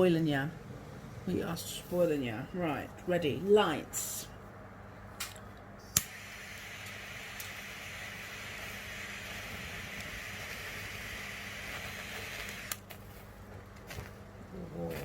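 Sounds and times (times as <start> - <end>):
torch click: 5.2 - 13.0
gas torch hissing: 5.9 - 12.9.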